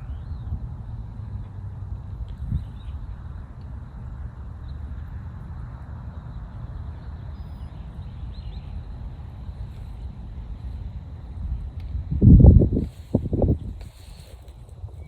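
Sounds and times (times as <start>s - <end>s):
distant jet airliner rumble: 0.0s - 15.0s
faint bird chirps: 6.2s - 9.0s.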